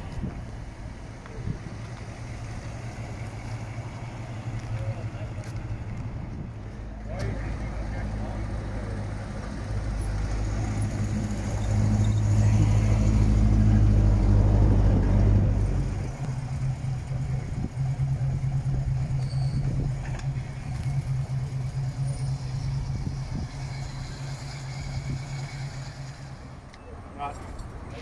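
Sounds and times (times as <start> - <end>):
car engine running: 14.4 - 26.7.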